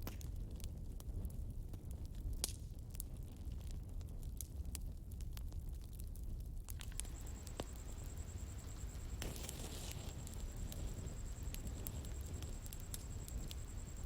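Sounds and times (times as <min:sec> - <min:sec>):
bonfire crackling: 0:00.0 - 0:14.0
faint high whine: 0:06.8 - 0:14.0.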